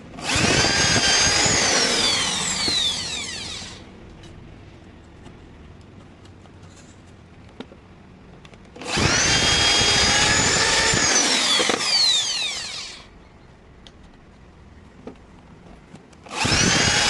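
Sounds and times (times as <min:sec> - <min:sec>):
electric power tool running: 0:00.2 - 0:03.9, 0:08.8 - 0:13.1, 0:16.3 - 0:17.0
motor winding down whine: 0:00.2 - 0:03.9, 0:08.8 - 0:13.1, 0:16.3 - 0:17.0.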